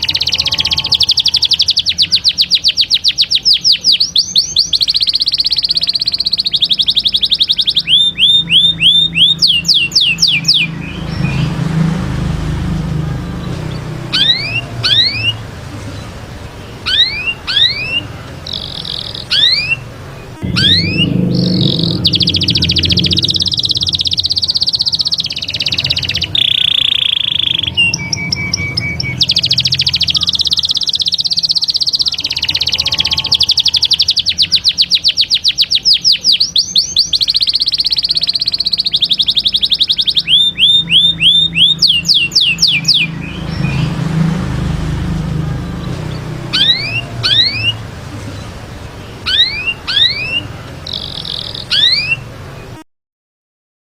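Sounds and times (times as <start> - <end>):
canary singing trills: 0.0 - 52.8
low steady hum: 20.0 - 24.5.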